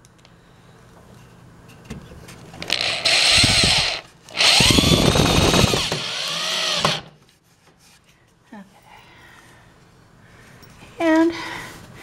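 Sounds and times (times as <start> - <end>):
cordless drill driving screws: 2.7 - 7.1.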